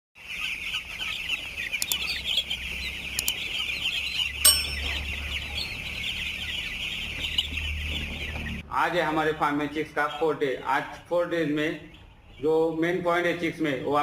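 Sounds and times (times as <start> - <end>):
chicks peeping: 0.2 - 14.0
sharp metal clank: 4.5 - 5.2.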